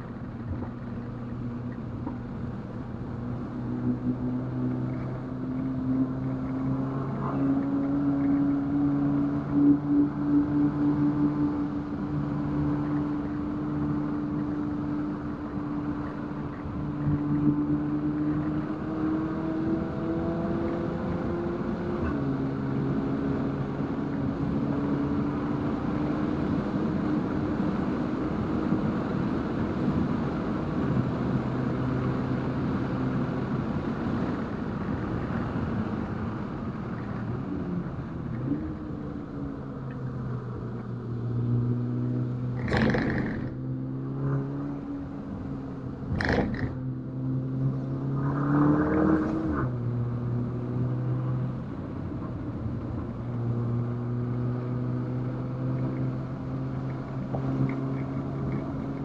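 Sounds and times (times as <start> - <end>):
road and wind noise: 0.0 - 59.0
car engine running: 42.6 - 43.6, 46.0 - 46.8.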